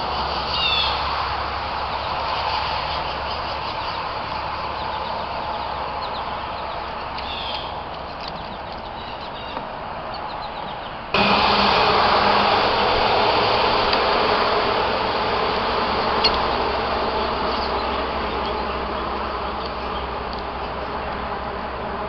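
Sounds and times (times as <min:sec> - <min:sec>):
outdoor background noise: 0:00.0 - 0:22.0
small birds chirping: 0:00.4 - 0:01.1, 0:01.8 - 0:11.1, 0:15.8 - 0:21.3.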